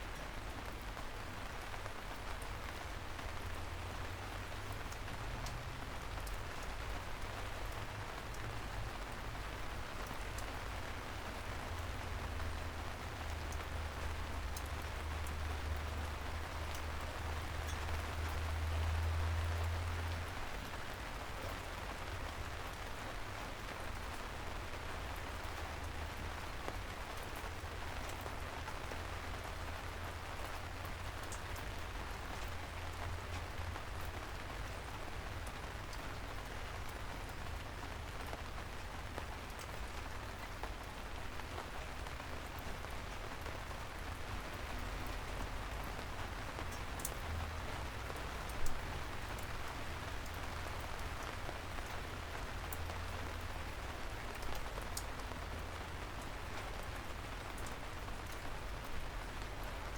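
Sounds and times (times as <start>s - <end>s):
soft rain falling: 0.0s - 59.9s
drip ticks: 4.8s - 5.6s, 14.5s - 16.0s, 16.7s - 16.9s, 46.6s - 48.8s.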